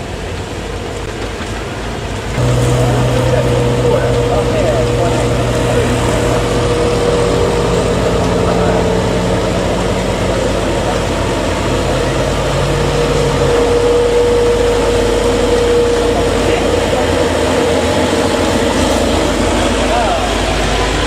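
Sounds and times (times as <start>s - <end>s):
vehicle engine humming: 0.0s - 21.0s
steady whine: 2.3s - 21.0s.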